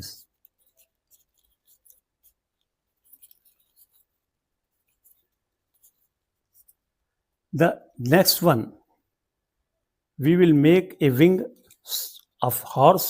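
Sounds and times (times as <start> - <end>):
paper crinkling and rustling: 0.2 - 6.8.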